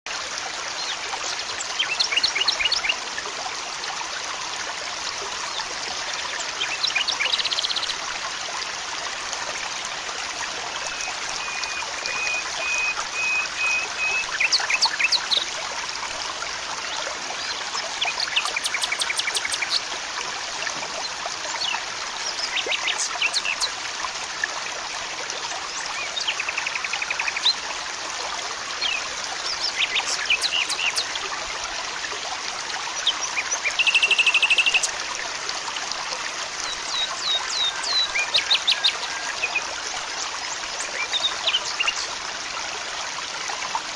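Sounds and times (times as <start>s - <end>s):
stream water trickling: 0.1s - 43.9s
birds chirping: 17.4s - 20.0s, 20.8s - 23.7s, 28.8s - 31.1s, 33.0s - 34.9s, 36.7s - 42.1s
bird buzzy trills: 17.6s - 19.9s.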